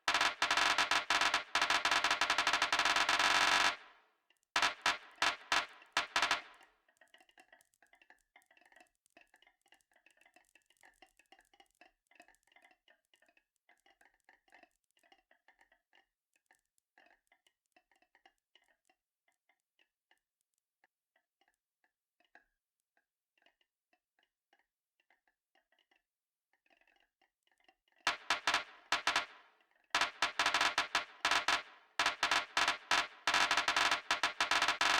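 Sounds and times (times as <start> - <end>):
marbles clicking on a track: 0.0 - 3.9, 4.6 - 7.8, 28.1 - 34.9.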